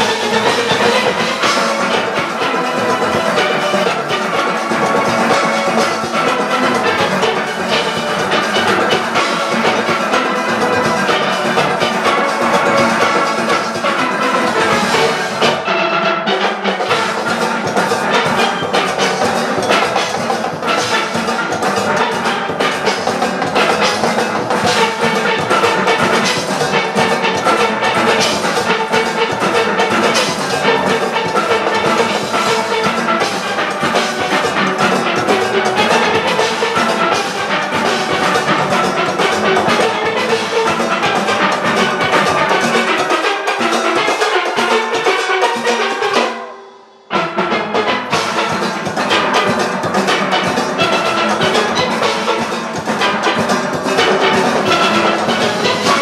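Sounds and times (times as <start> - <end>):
drum kit and percussion rhythm: 0.0 - 56.0
steel pans playing: 0.0 - 56.0.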